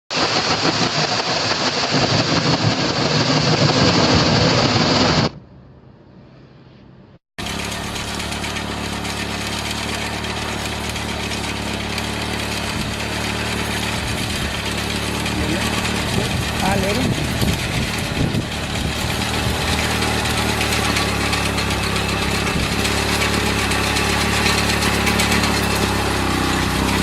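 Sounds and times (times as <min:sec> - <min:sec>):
motorcycle engine running loudly: 0:00.1 - 0:05.2, 0:07.4 - 0:27.0
engine idling: 0:07.4 - 0:27.0.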